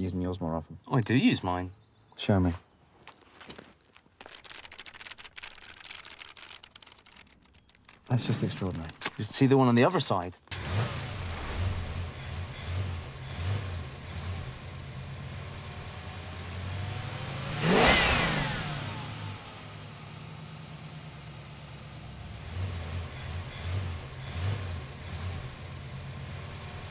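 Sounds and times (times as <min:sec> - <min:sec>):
car engine revving in pulses: 0:10.5 - 0:26.9.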